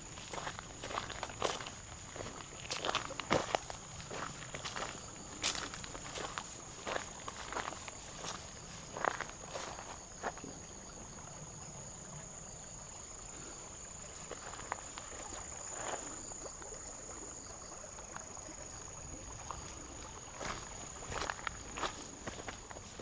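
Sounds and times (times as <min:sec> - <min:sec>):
soft footsteps: 0:19.6 - 0:23.0.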